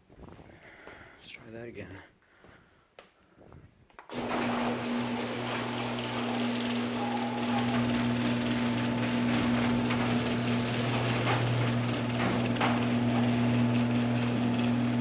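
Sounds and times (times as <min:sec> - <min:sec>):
garage door opener motor humming: 0:04.1 - 0:15.0.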